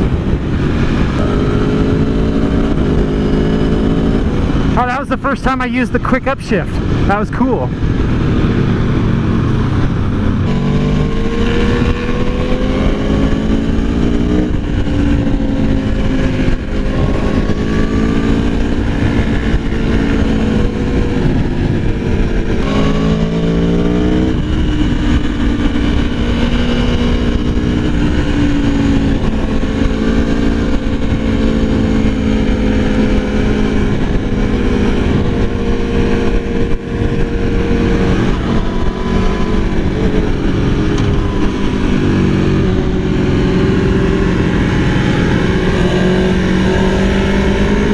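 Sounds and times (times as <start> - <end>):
heavy low rushing noise: 0.0 - 47.9
motorcycle engine accelerating: 0.0 - 47.9.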